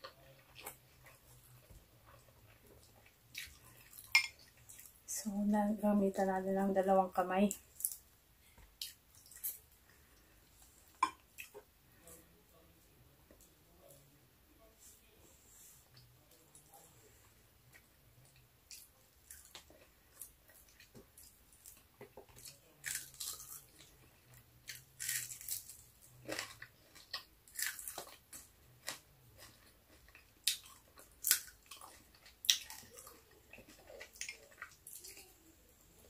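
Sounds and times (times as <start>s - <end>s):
crunching fried fish: 18.7s - 35.3s.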